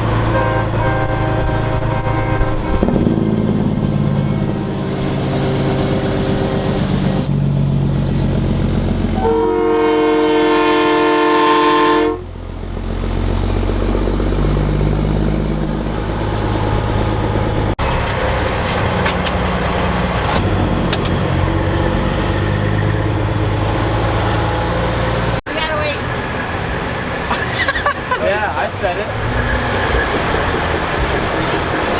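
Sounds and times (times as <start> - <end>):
diesel truck engines rumbling: 0.0 - 31.9
multi-tone air horn: 0.1 - 3.1, 9.2 - 12.3.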